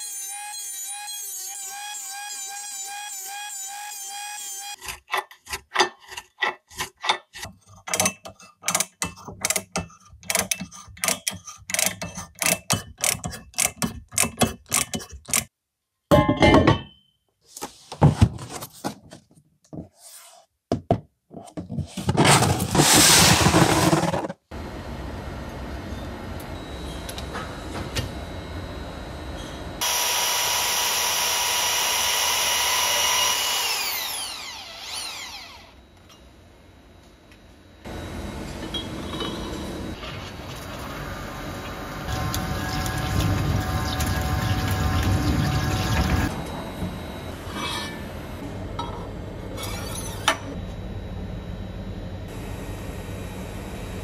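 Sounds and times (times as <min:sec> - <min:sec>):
machine running: 0:37.8 - 0:48.8.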